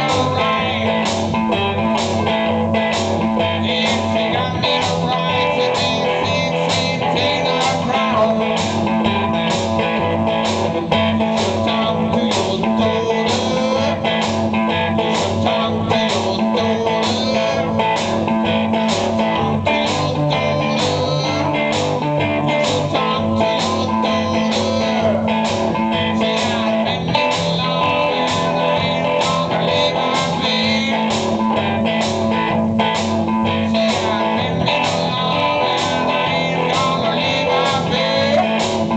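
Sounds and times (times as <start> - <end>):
blues-rock guitar with steady beat: 0.0 - 38.9.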